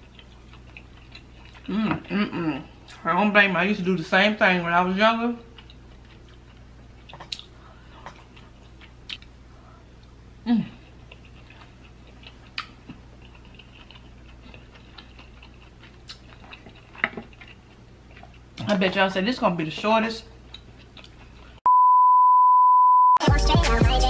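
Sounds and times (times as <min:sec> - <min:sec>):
person humming low: 0:01.7 - 0:02.7.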